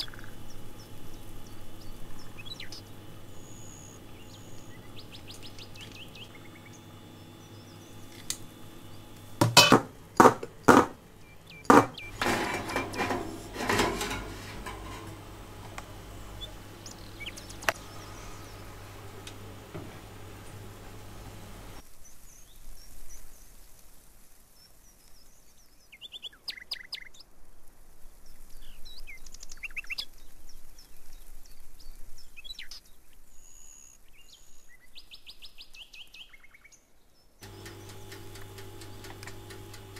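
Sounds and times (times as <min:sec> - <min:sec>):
birds chirping: 0:00.0 - 0:21.8, 0:37.4 - 0:39.9
steady low hum: 0:00.0 - 0:21.8, 0:37.4 - 0:39.9
kitchenware knocks and clatter: 0:09.4 - 0:11.0, 0:11.7 - 0:15.7.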